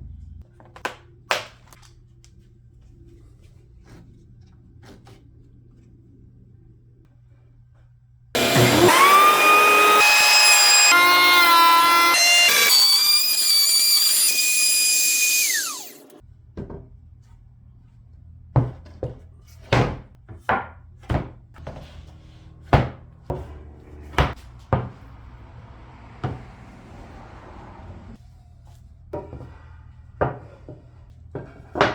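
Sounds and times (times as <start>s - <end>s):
power tool whining: 8.4s - 16.2s
low hum: 21.8s - 28.2s.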